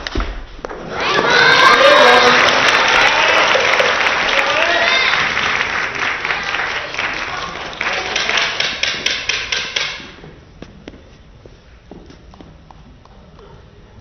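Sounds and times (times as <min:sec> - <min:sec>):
crowd applauding: 0:00.8 - 0:09.0.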